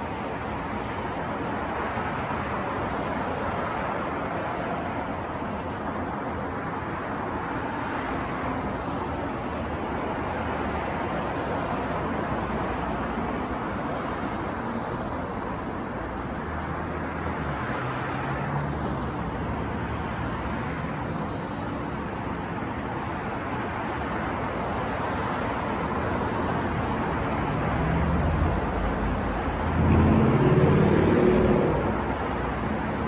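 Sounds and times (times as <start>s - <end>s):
passing cars: 0.0s - 33.0s
vehicle engines humming: 25.4s - 33.0s.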